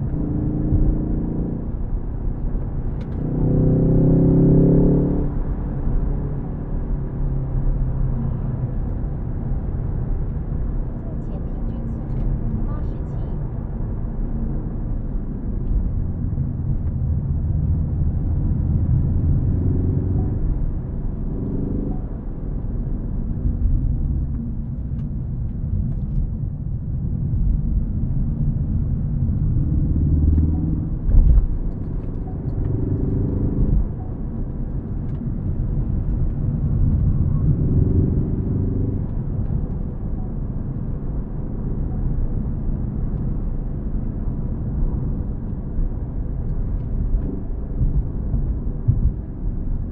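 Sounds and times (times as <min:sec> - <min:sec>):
car engine rumbling: 0:00.0 - 0:49.9
road noise: 0:00.0 - 0:49.9.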